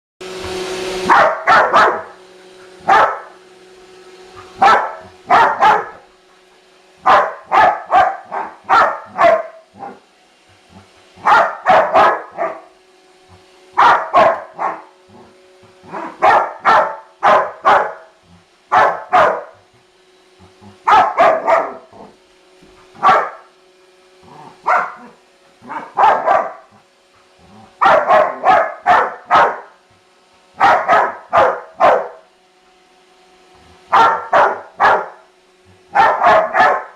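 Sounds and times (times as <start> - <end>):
robot vacuum humming: 0.2 - 36.9
dog barking: 1.0 - 2.2, 2.8 - 3.4, 4.6 - 6.0, 7.0 - 10.0, 11.2 - 12.7, 13.8 - 14.9, 15.9 - 18.1, 18.7 - 19.6, 20.9 - 22.1, 23.0 - 23.5, 24.6 - 26.7, 27.8 - 29.8, 30.6 - 32.2, 33.9 - 35.2, 35.9 - 36.9.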